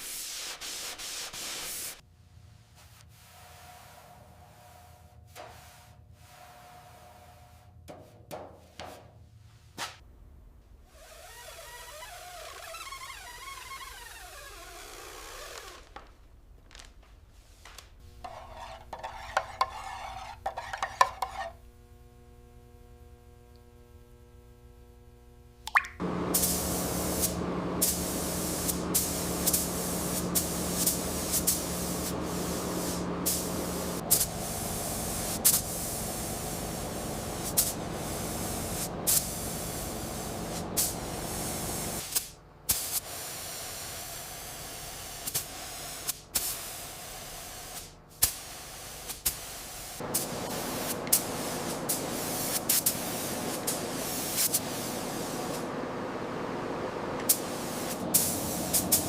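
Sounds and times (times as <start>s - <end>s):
spraying hiss: 26.0s - 59.0s.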